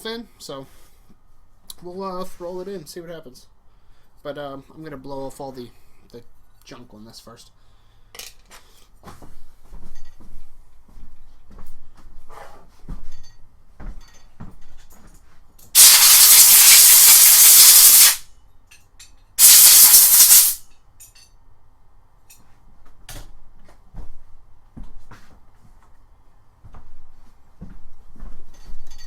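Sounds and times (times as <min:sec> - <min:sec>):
compressed air blasts: 0:15.8 - 0:18.3, 0:19.4 - 0:20.6.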